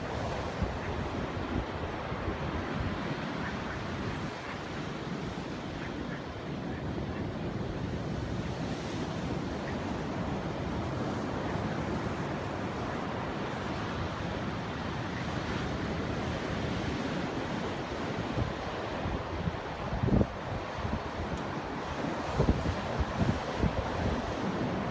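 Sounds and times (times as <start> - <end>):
ocean surf breaking: 0.0 - 24.9
wind on microphone: 0.0 - 24.9.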